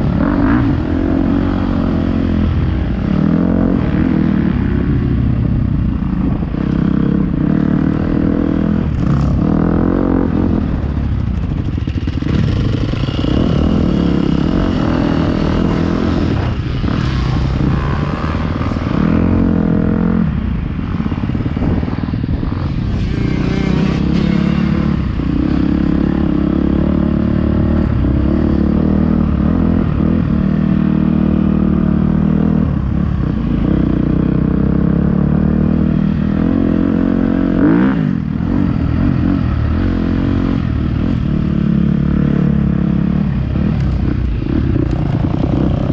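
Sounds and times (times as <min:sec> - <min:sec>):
motocross bike engine revving: 0:22.7 - 0:30.1.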